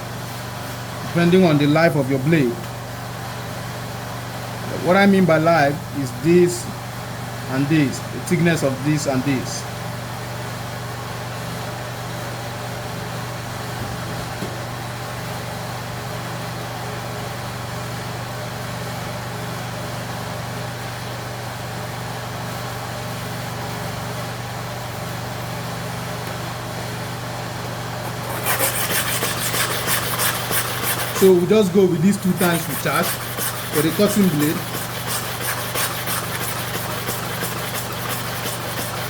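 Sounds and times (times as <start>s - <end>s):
mechanical hum: 0.0s - 39.0s
blade rubbed on sharpening stone: 28.1s - 39.0s.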